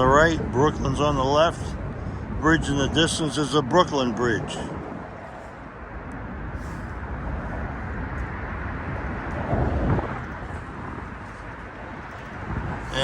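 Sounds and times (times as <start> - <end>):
low rumble of bridge traffic: 0.0 - 13.0.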